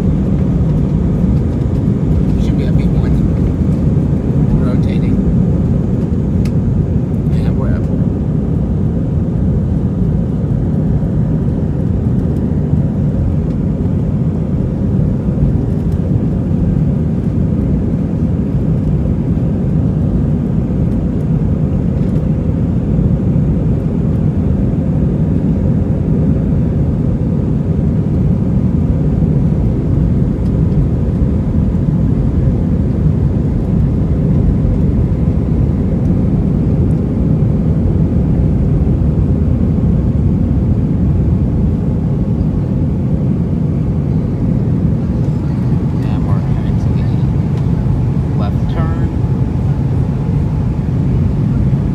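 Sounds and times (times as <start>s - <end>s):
faint steady hum: 0.0s - 51.9s
jet engines rumbling: 0.0s - 51.9s
rushing air: 43.5s - 51.9s.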